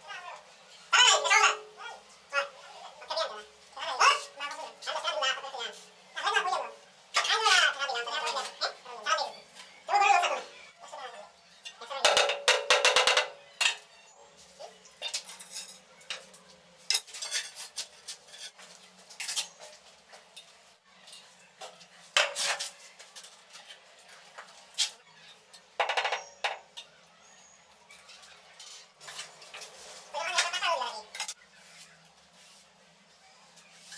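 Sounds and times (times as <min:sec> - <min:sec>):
ceramic tiles and metal tool clinking: 0:15.0 - 0:16.3.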